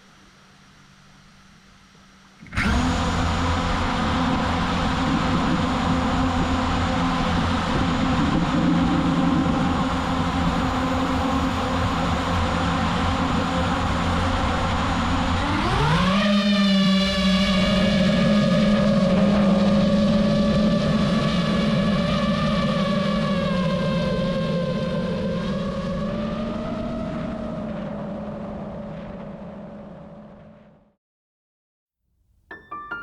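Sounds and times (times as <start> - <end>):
drone motors whining: 2.4 - 21.1.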